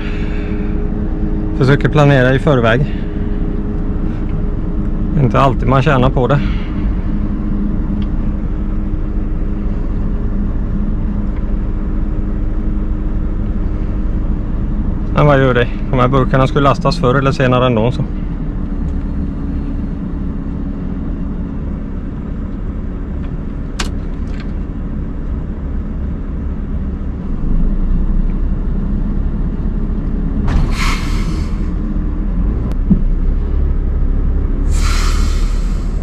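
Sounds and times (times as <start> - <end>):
truck diesel engine under load: 0.0 - 36.0
short air hisses: 30.5 - 31.8, 34.7 - 36.0.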